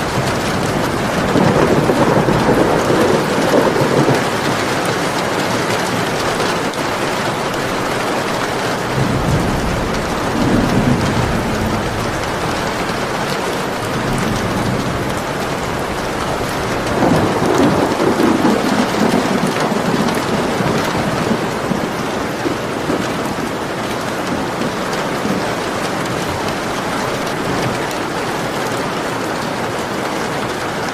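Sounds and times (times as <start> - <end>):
rolling thunder: 0.0 - 6.8, 8.9 - 28.2
heavy rain: 0.0 - 30.9.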